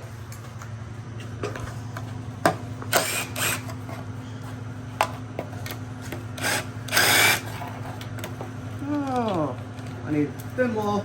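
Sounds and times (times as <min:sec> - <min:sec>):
steady low hum: 0:00.0 - 0:11.0
cordless power tool spinning: 0:02.9 - 0:03.8, 0:06.4 - 0:07.6.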